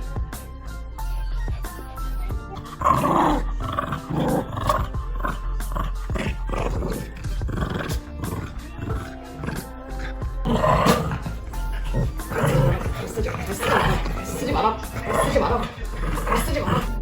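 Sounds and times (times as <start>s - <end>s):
background music: 0.0s - 17.0s
dogs growling: 2.2s - 17.0s.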